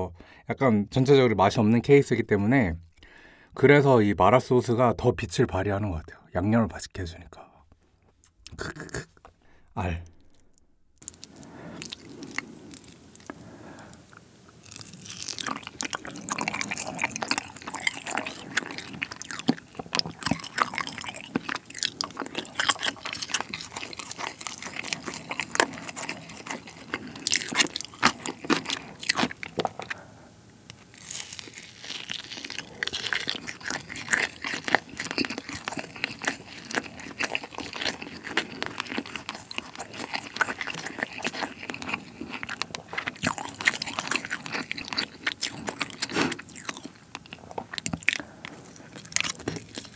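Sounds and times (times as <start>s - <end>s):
mouth clicks: 8.2s - 9.4s
close chewing crunches: 10.1s - 49.9s.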